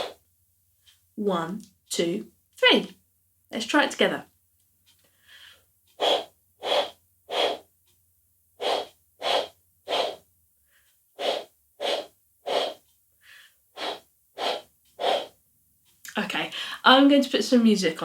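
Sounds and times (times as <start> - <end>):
breath blown into cupped hands: 5.3 - 7.7, 8.6 - 10.2, 11.2 - 15.4.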